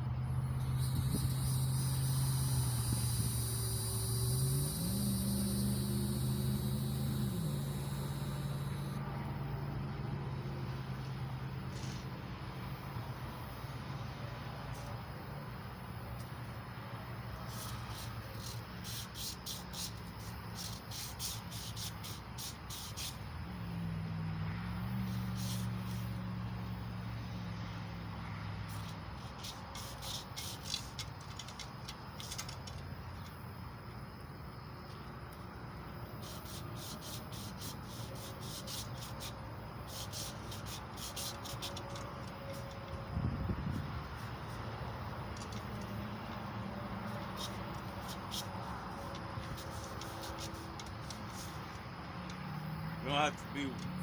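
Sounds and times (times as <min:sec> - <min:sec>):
steady low hum: 0:00.0 - 0:52.0
emery cloth scratching metal: 0:47.2 - 0:51.8.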